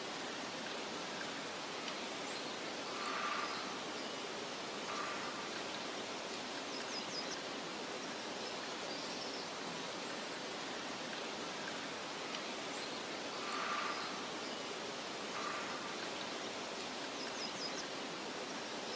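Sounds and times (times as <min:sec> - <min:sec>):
soft outdoor hiss: 0:00.0 - 0:18.9
faint bird chirps: 0:02.2 - 0:07.4, 0:11.6 - 0:18.9.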